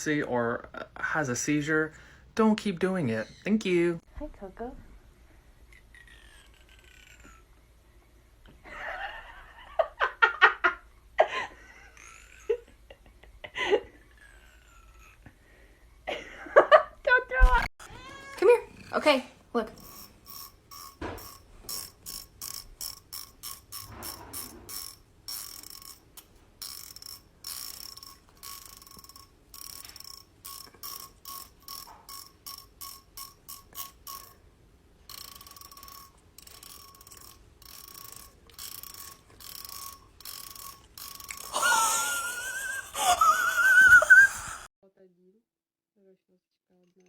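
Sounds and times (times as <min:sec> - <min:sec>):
fingernail scraping comb teeth: 0:19.7 - 0:34.4, 0:35.1 - 0:41.6
wavering voice: 0:42.8 - 0:44.7.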